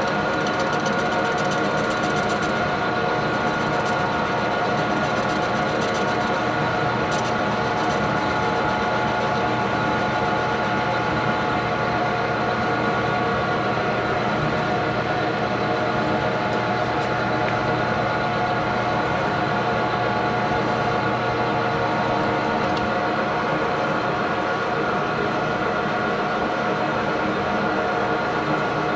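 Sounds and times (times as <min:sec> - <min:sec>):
metal lathe gear and motor whine: 0:00.0 - 0:22.3.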